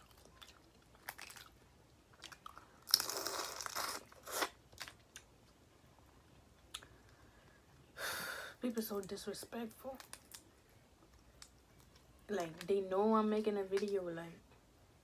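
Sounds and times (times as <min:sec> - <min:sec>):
chewing: 0:00.0 - 0:05.3.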